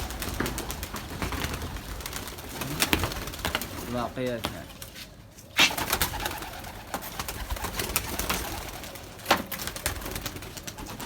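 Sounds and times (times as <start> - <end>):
pigeons flapping wings: 0.0 - 11.0
loud wing clap: 5.6 - 11.0.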